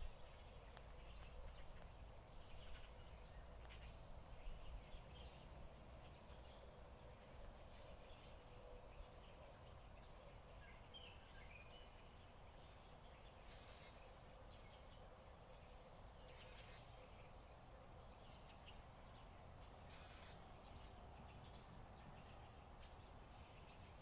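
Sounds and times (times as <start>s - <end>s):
faint bird chirps: 0.0s - 24.0s.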